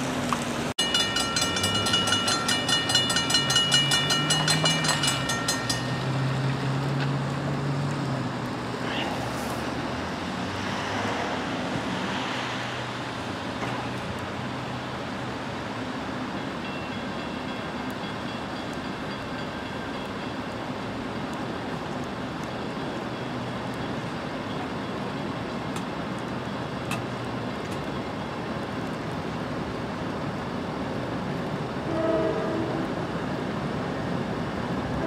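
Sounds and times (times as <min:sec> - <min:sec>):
approaching train: 0:00.0 - 0:35.0
traffic on wet road: 0:00.0 - 0:35.0
train horn: 0:31.8 - 0:33.1.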